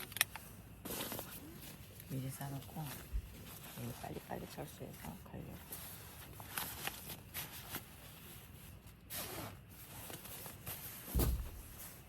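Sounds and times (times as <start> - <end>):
rustling of bags and gear: 0.3 - 12.0
zipper pull: 9.1 - 10.2
dull thump: 11.1 - 11.8.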